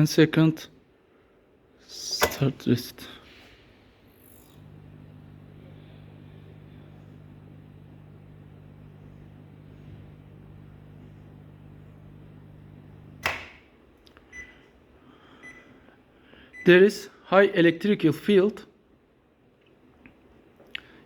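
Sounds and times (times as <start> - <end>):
microwave humming: 3.8 - 14.6
loud click: 13.2 - 13.6.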